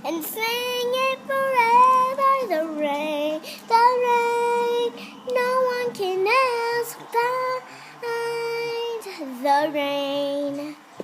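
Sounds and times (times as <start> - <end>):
girl singing unaccompanied: 0.0 - 10.9.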